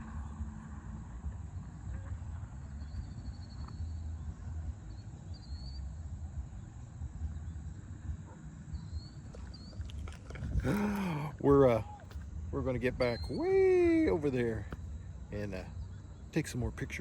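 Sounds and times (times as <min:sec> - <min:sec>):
wind buffeting microphone: 0:00.0 - 0:17.0
faint high bird chirps: 0:01.4 - 0:10.5, 0:13.0 - 0:16.4.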